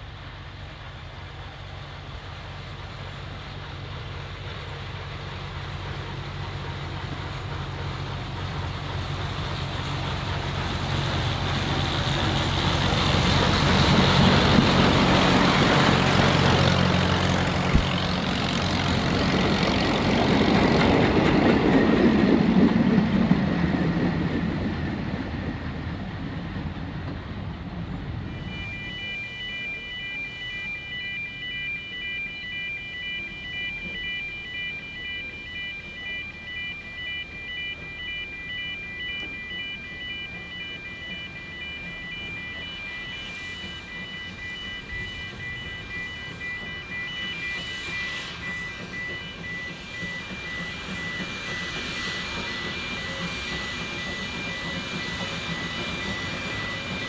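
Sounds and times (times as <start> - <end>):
train running past: 0.0 - 57.0
level crossing alarm beeps: 28.2 - 57.0.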